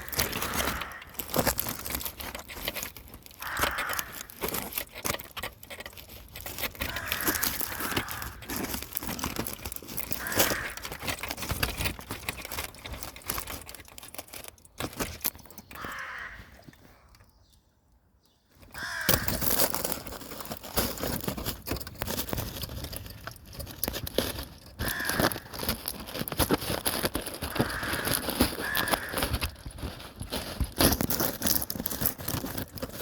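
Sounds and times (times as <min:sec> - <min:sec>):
crows cawing: 0:00.0 - 0:01.4, 0:03.4 - 0:04.4, 0:06.8 - 0:08.5, 0:10.0 - 0:11.2, 0:15.7 - 0:17.1, 0:18.7 - 0:19.4, 0:24.8 - 0:25.5, 0:27.5 - 0:29.6
crinkling and crackling: 0:00.0 - 0:33.0.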